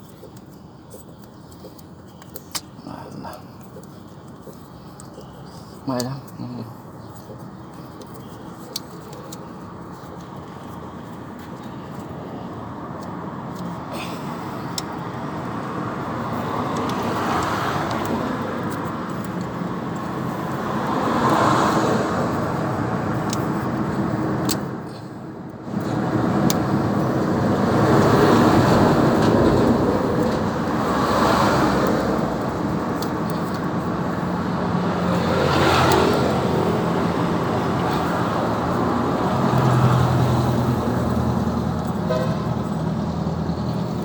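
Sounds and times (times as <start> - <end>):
vehicles passing: 0.0 - 44.0.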